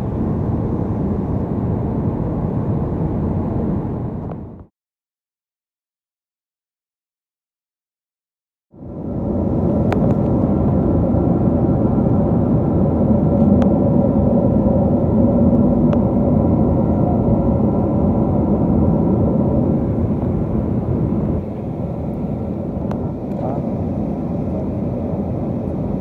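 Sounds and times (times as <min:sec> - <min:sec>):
airflow and engine drone in cabin: 0:00.0 - 0:04.7, 0:08.7 - 0:26.0.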